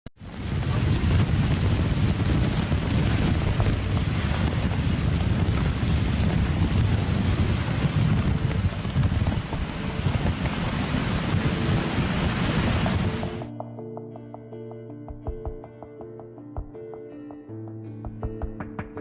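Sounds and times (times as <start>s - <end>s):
wind gusting on microphone: 0.2s - 13.5s
heavy low rumble: 0.2s - 13.6s.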